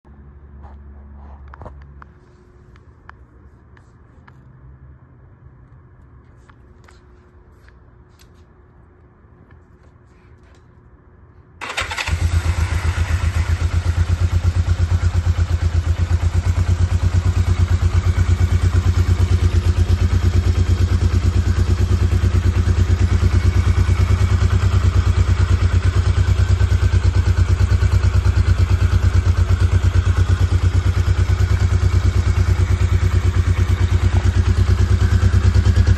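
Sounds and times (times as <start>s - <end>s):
motorcycle engine starting and running: 11.6s - 35.9s.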